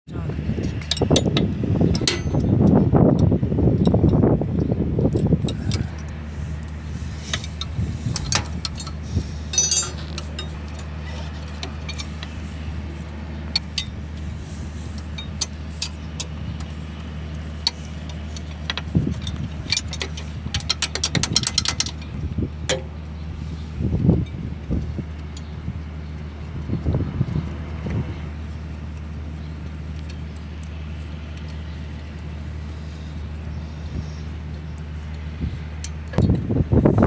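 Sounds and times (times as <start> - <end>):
diesel engine idling: 0.2 - 37.0
sharp metallic clicks: 15.0 - 23.0.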